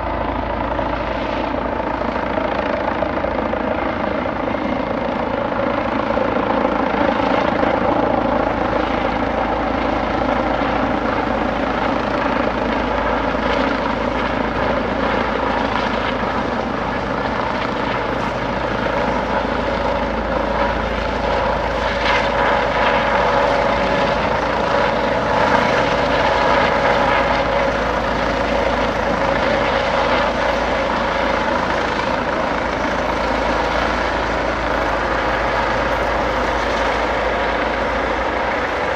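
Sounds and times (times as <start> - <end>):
helicopter running: 0.0 - 38.9.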